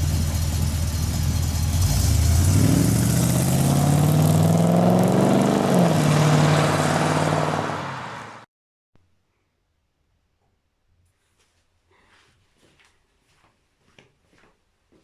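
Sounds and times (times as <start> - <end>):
car engine accelerating: 0.0 - 8.4.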